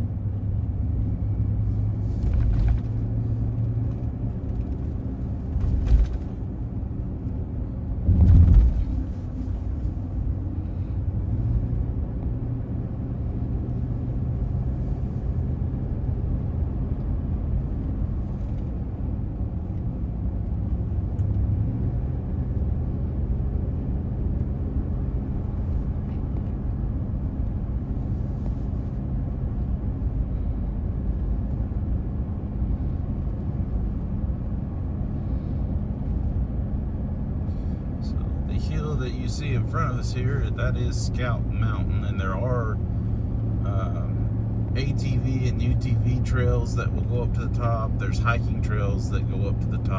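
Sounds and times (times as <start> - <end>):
car engine and tyre rumble: 0.0 - 49.9
short thumps: 8.0 - 9.9.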